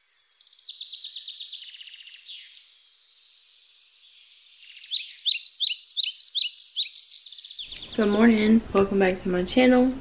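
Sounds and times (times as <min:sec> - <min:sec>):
bird trill: 0:00.0 - 0:08.3
small songbirds chirping: 0:00.0 - 0:08.6
falling bird whistle: 0:04.7 - 0:07.8.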